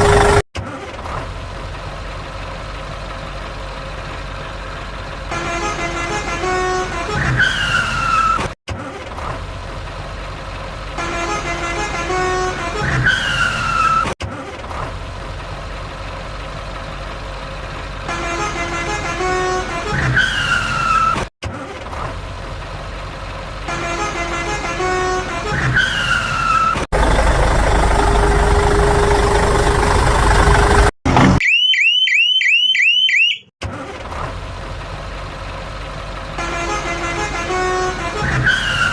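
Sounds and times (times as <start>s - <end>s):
noisy engine running: 0.0s - 5.6s, 26.9s - 31.4s
engine with falling horn-like tone: 3.2s - 8.4s, 10.5s - 14.0s, 16.6s - 21.2s, 23.6s - 30.9s, 35.3s - 38.9s
horn toots: 5.3s - 8.5s, 11.0s - 14.1s, 18.0s - 21.2s, 23.7s - 26.8s, 36.4s - 38.9s.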